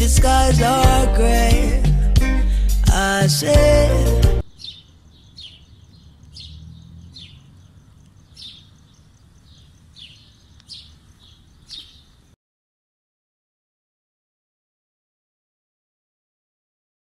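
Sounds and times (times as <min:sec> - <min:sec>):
birds chirping: 0:04.4 - 0:12.4.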